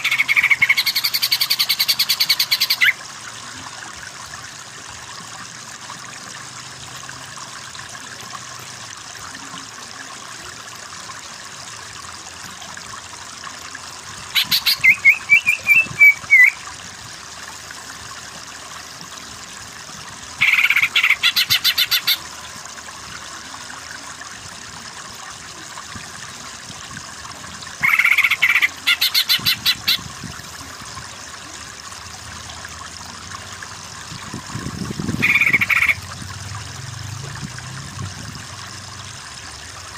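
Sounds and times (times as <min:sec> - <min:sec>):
running water trickling: 0:00.0 - 0:39.9
chattering animal calls: 0:27.8 - 0:30.0, 0:35.2 - 0:36.0.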